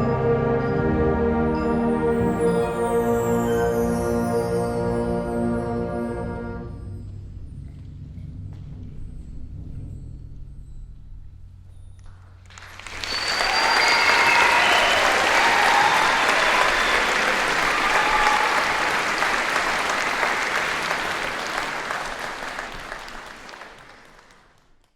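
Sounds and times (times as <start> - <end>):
audience cheering: 12.5 - 24.3
audience applauding: 12.5 - 24.9.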